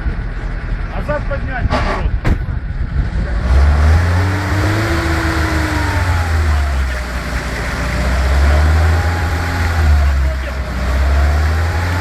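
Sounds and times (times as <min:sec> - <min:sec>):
off-road vehicle engine droning: 0:00.0 - 0:12.0.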